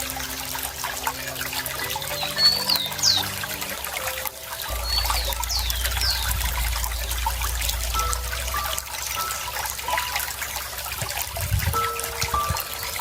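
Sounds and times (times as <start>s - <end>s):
low hum: 0.0s - 13.0s
water trickling and splashing: 0.0s - 13.0s
bird chirps: 1.7s - 10.2s.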